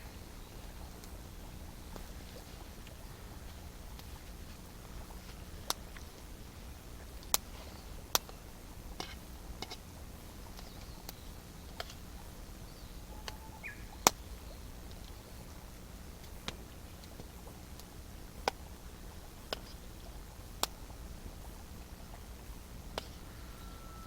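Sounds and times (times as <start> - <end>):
campfire crackling: 0.0 - 24.0
fire pops: 0.8 - 12.1, 16.2 - 23.2.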